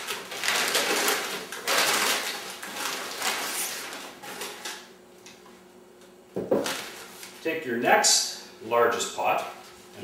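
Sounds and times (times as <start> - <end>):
packing paper rustling and crinkling: 0.0 - 4.9.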